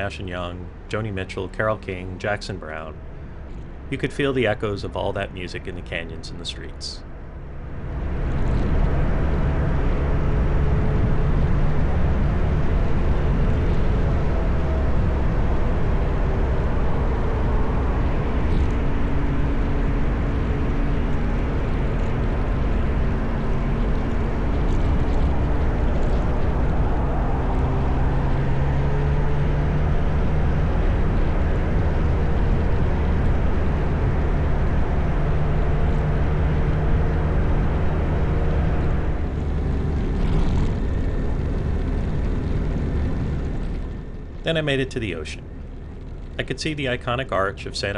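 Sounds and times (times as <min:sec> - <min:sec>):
road noise: 0:00.0 - 0:47.9
wind noise: 0:07.8 - 0:44.7
motorcycle engine running: 0:07.8 - 0:44.8.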